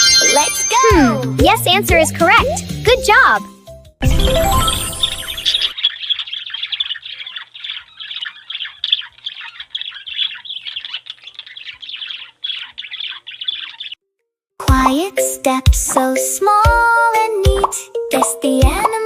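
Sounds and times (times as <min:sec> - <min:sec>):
songbirds chirping and twittering: 0:04.5 - 0:14.0.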